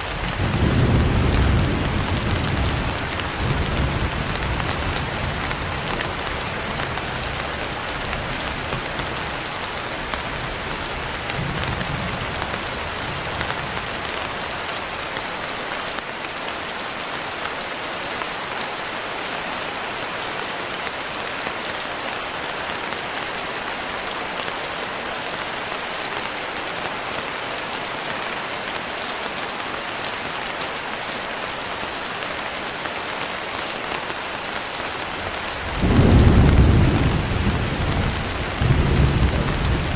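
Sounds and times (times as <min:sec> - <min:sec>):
steady rain falling: 0:00.0 - 0:39.9
distant thunder rumble: 0:35.4 - 0:39.9.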